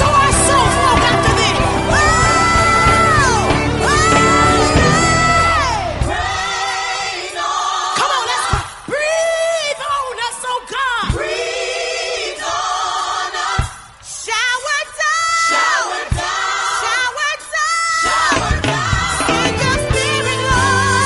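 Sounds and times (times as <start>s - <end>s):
bass line and beat: 0.0s - 6.4s, 18.3s - 21.0s
woman singing with vibrato: 0.0s - 11.6s, 14.2s - 21.0s
backing vocals: 0.0s - 13.6s.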